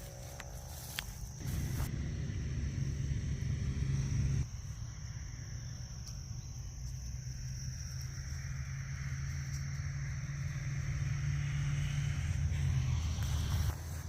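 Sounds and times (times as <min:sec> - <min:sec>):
low rumble: 0:01.4 - 0:04.6.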